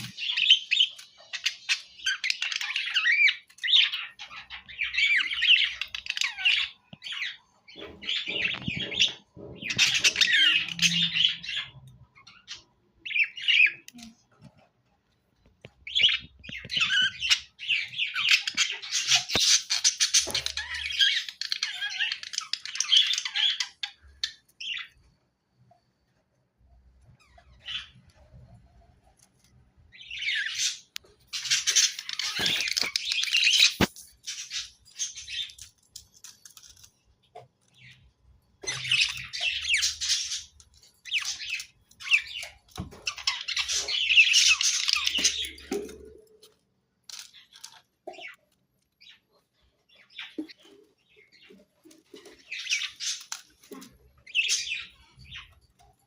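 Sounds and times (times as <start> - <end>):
budgerigars chattering and warbling: 0.0 - 14.2, 15.9 - 24.9, 29.9 - 35.7, 37.8 - 46.3, 50.0 - 55.8.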